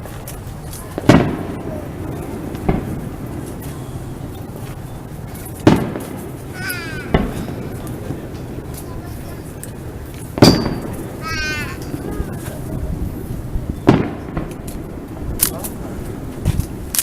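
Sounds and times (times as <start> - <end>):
fireworks booming with echo: 0.0 - 17.0.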